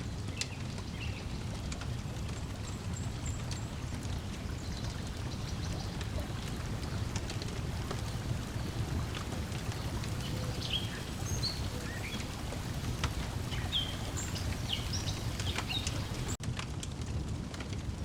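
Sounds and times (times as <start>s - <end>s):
wood fire crackling: 0.0s - 18.0s
water lapping: 2.4s - 16.4s.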